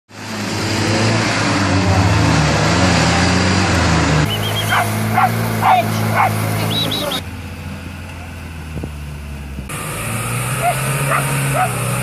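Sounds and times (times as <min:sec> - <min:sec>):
engine revving unevenly: 0:00.1 - 0:12.0
small dog barking: 0:04.7 - 0:06.4, 0:10.6 - 0:11.8.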